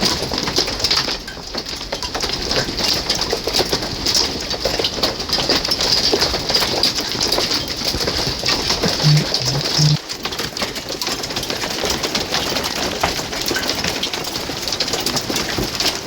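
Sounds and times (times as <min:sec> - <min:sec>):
short low tones: 0:09.0 - 0:10.0.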